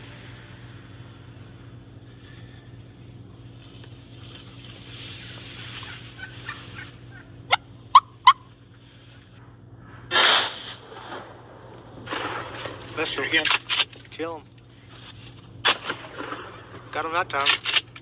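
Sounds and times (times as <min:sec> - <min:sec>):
turkey gobbling: 0:05.7 - 0:08.6
shotgun blast: 0:10.1 - 0:13.6, 0:15.6 - 0:17.6.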